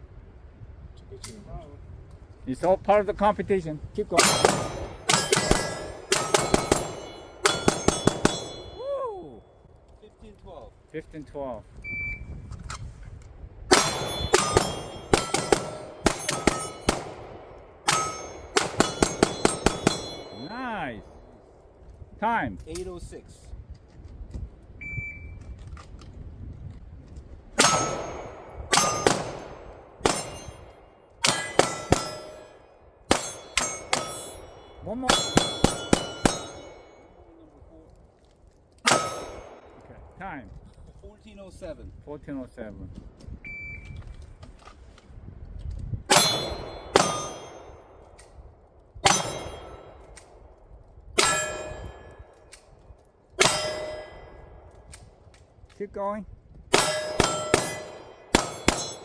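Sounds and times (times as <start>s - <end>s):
pistol shots: 4.2s - 8.8s, 13.7s - 20.6s, 27.6s - 37.2s, 38.8s - 40.2s, 46.1s - 48.3s, 49.0s - 50.5s, 53.4s - 55.0s, 56.7s - 59.0s
steel plate metallic ring: 4.2s - 8.9s, 13.7s - 17.1s, 17.9s - 20.7s, 27.6s - 37.2s, 38.9s - 39.6s, 46.1s - 48.0s, 49.0s - 50.2s, 51.2s - 52.5s, 53.4s - 54.6s, 56.7s - 59.0s
shot timer beep: 11.9s - 12.2s, 24.8s - 25.4s, 43.5s - 44.0s.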